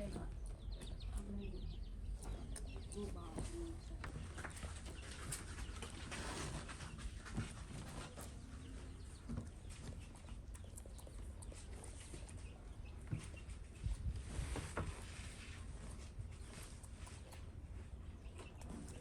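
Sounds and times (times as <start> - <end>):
small clicks and lip smacks: 9.3 - 12.5.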